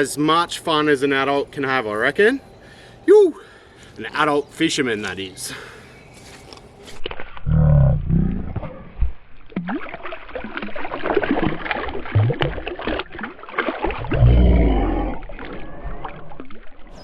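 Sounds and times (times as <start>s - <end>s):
water splashing and gurgling: 6.9s - 17.0s.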